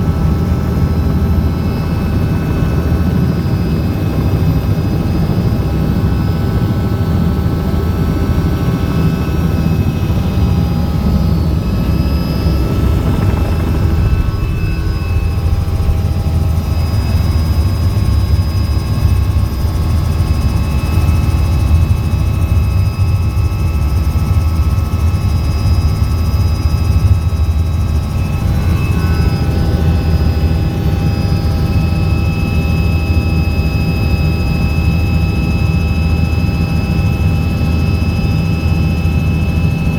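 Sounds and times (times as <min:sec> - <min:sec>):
helicopter rotor rumble: 0:00.0 - 0:39.9
thin whining tones: 0:06.0 - 0:33.6.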